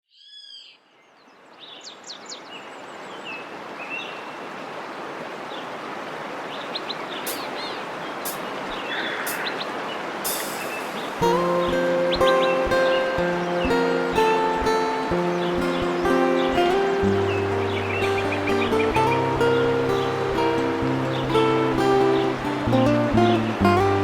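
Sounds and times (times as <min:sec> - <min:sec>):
steady rushing noise: 0:07.3 - 0:24.0
birds chirping and calling: 0:10.3 - 0:24.0.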